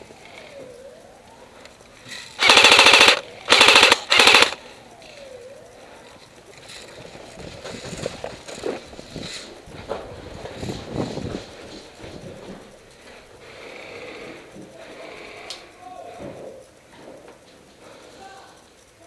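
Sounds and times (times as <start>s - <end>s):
airsoft rifle bursts: 2.0s - 5.2s.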